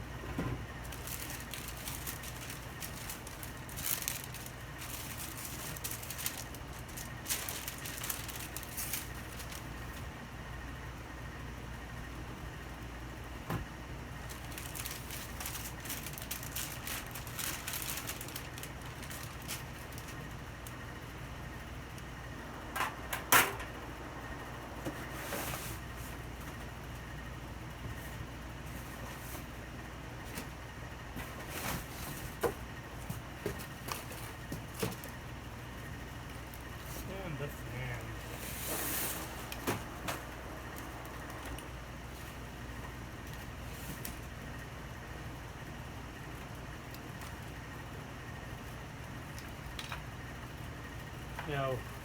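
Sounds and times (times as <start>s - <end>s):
low background hum: 0.0s - 52.0s
paper rustling and crinkling: 0.8s - 10.1s, 14.2s - 20.8s, 31.2s - 35.2s, 38.2s - 42.4s.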